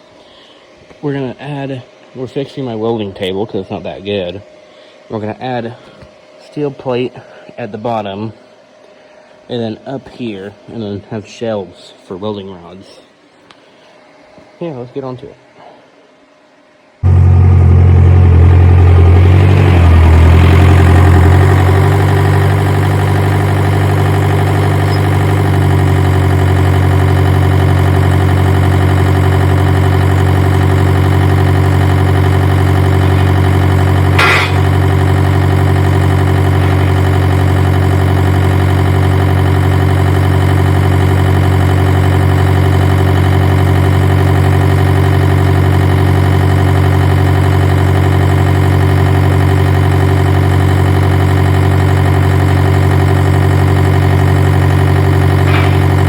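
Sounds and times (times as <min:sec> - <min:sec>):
engine idling: 0:17.0 - 0:56.0.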